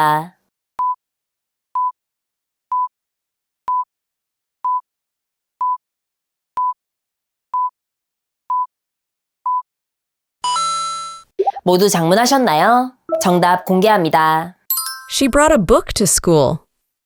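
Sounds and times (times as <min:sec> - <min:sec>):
electronic timer beeps: 0:13.1 - 0:13.6.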